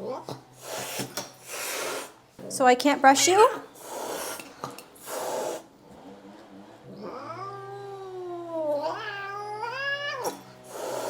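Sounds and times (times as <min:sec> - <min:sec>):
cat yowling: 0:07.0 - 0:11.0.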